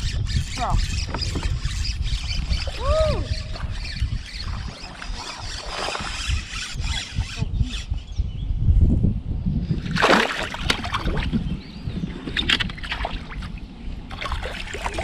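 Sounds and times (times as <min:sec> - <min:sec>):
water sloshing around kayak: 0:00.5 - 0:07.2, 0:09.9 - 0:15.0.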